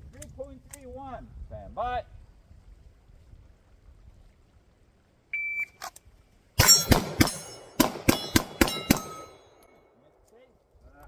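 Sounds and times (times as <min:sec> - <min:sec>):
shot timer beep: 0:05.4 - 0:05.8
rapid pistol shots: 0:06.6 - 0:09.6
steel plates ringing: 0:06.6 - 0:09.8.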